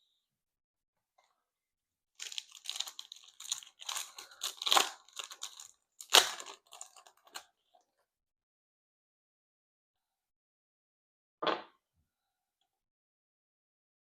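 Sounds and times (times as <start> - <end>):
foil wrapper tearing and crinkling: 2.2 - 7.4.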